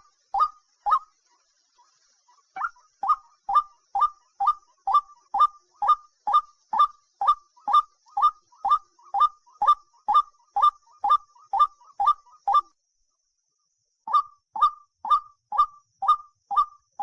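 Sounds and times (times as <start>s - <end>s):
bird whistled call: 0.0s - 1.1s, 2.3s - 12.7s, 14.1s - 17.0s
faint high hiss: 0.0s - 11.4s.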